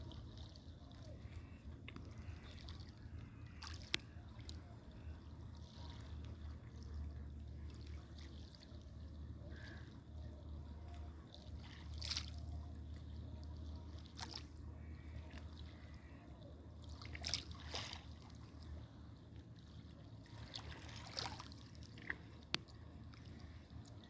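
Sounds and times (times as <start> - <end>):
steady low rumble: 0.0 - 24.0
water splashing and trickling: 0.0 - 24.0.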